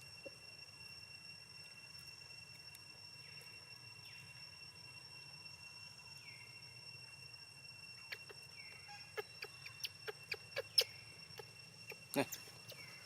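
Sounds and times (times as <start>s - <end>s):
faint high-pitched whine: 0.0s - 13.0s
animal chirps or squeaks: 8.0s - 13.0s.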